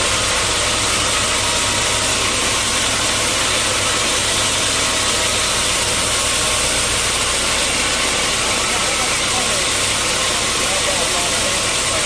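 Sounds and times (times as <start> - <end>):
sawmill machinery running: 0.0 - 12.0.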